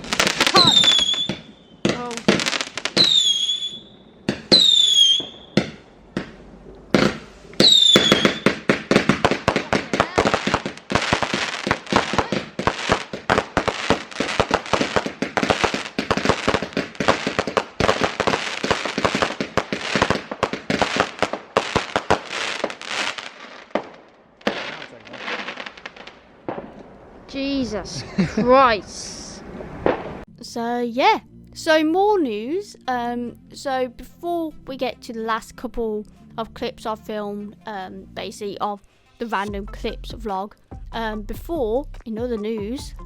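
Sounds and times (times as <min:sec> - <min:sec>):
whistling fireworks: 0:00.0 - 0:26.8
fireworks crackling bangs: 0:00.0 - 0:30.3.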